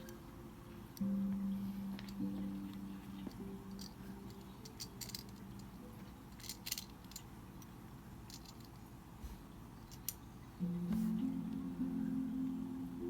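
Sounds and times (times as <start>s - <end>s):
guitar notes ringing: 10.6s - 13.0s.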